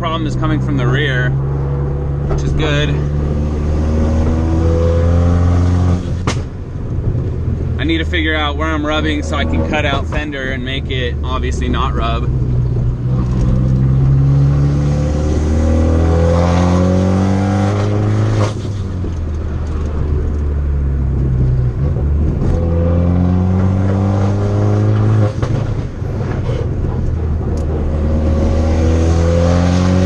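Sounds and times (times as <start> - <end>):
turbocharged engine revving: 0.0 - 6.4, 7.8 - 30.0
exhaust pops and crackles: 6.1 - 14.2, 17.8 - 22.6, 24.9 - 27.9.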